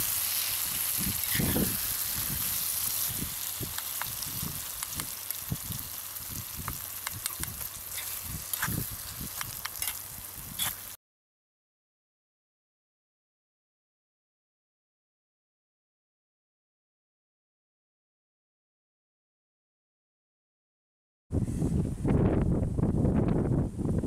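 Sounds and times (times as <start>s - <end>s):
curry sizzling in a pan: 0.0s - 11.0s
spatula scraping a metal pan: 1.2s - 1.8s, 7.8s - 8.9s, 10.6s - 10.8s.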